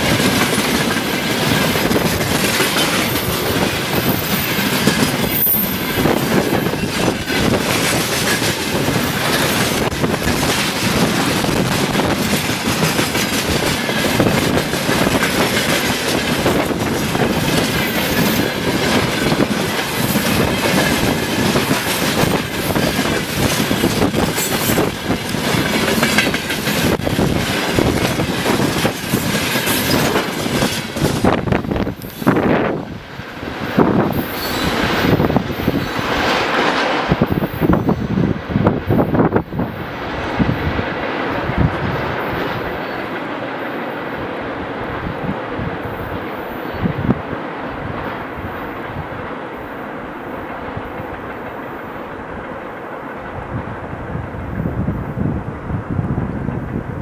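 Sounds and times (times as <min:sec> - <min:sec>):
wheels clicking over rail joints: 0:00.0 - 0:37.9
freight train rumbling and rattling: 0:00.0 - 0:57.0.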